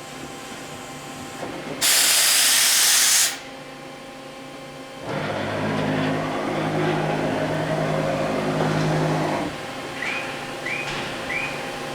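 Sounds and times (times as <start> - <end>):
machine motor humming: 5.0 - 10.8.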